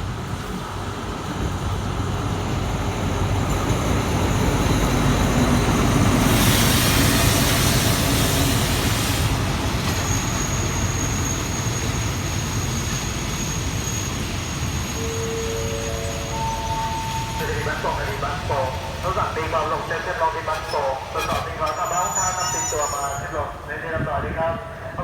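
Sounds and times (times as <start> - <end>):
passenger train rumble: 0.0 - 25.0
thin high whine: 14.8 - 18.6.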